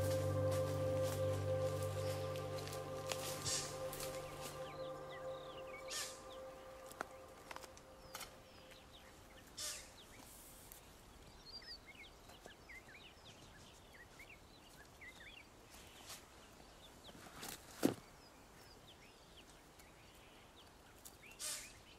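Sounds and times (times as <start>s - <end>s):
high bird chirps: 0.0s - 9.9s.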